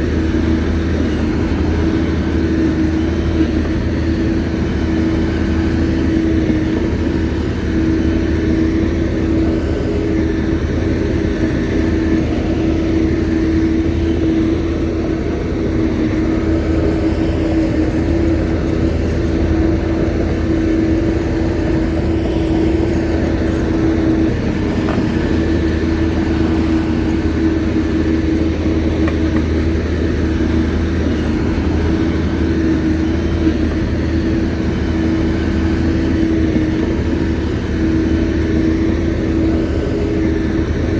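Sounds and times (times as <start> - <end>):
bulldozer diesel engine: 0.0 - 40.9.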